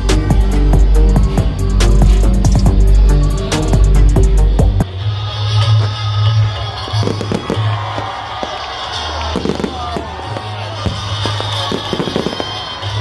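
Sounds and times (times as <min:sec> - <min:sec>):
loud music with heavy bass: 0:00.0 - 0:07.8
fireworks bangs and crackles: 0:07.0 - 0:13.0.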